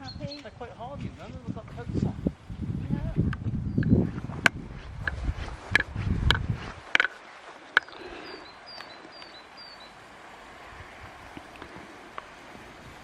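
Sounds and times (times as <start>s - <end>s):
sharp clicks or knocks: 4.4s - 7.2s
small bird calling: 6.9s - 10.3s.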